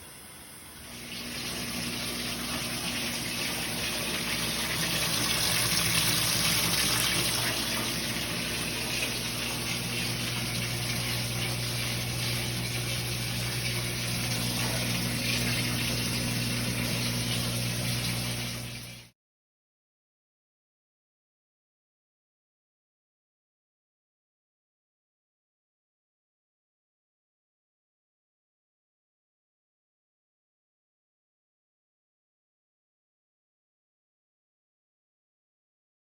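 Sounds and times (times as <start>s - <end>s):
water rushing into tub: 0.0s - 19.1s.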